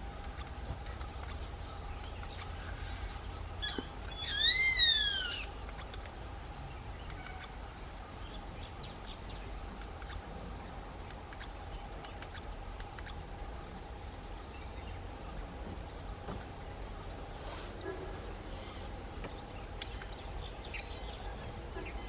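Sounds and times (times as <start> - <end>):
buzzard calling: 3.0 - 5.6.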